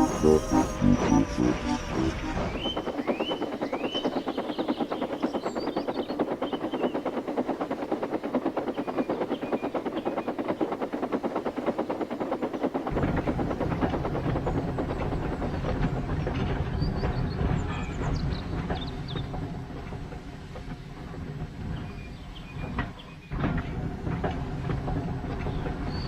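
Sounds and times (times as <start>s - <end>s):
deep rumble: 0.0s - 3.0s
steam engine chuffing: 0.0s - 17.6s
birds chirping: 1.6s - 7.1s.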